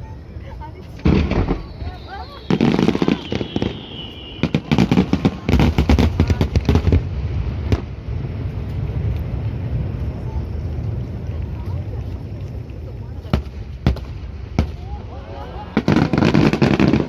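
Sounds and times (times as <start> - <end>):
firework crackling pops: 0.9 - 15.0, 15.7 - 17.0
firework whistle: 1.0 - 5.7
firework bang: 1.0 - 9.4.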